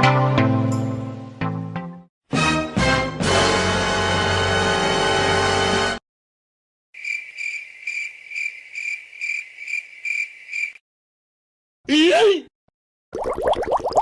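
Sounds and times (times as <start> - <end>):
cricket chirping: 7.0 - 10.8.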